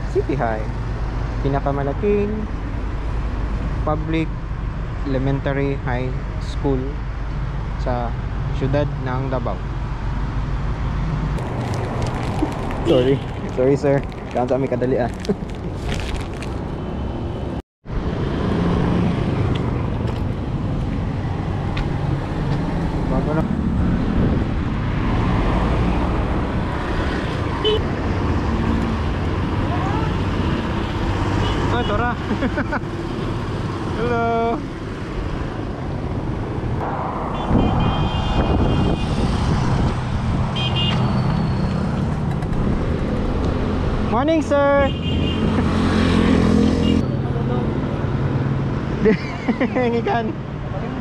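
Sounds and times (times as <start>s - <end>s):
vehicle engines running: 0.0s - 16.7s
road traffic rumble: 0.0s - 51.0s.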